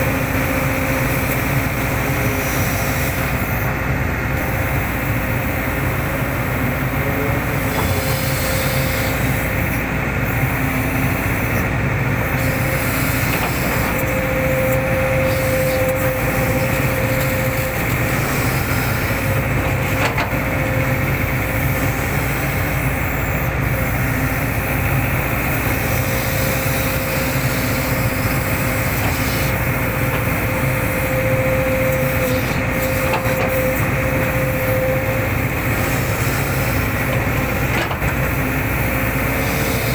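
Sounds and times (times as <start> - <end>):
excavator running: 0.0 - 39.9
excavator whine: 0.0 - 39.9.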